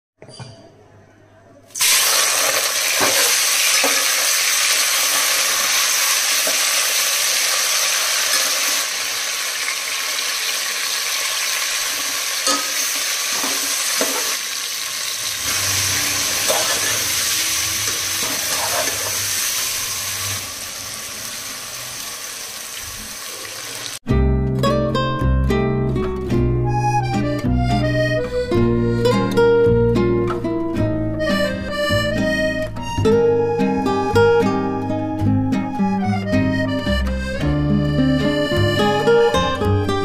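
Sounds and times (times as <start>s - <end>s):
chicken sizzling in hot oil: 1.8s - 24.0s
music: 15.4s - 19.2s, 24.0s - 40.0s
metal spatula scraping a pot: 15.5s - 19.6s.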